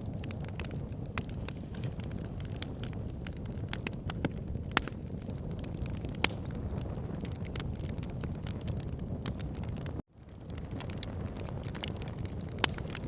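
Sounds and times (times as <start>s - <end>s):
crackling and popping logs: 0.0s - 13.0s
fire flames rumbling: 0.0s - 13.0s.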